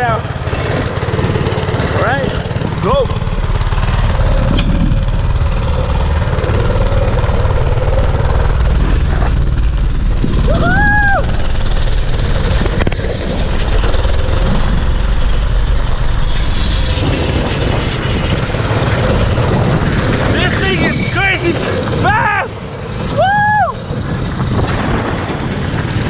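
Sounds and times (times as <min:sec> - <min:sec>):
small engine rumbling: 0:00.0 - 0:26.0
wind on microphone: 0:00.0 - 0:26.0.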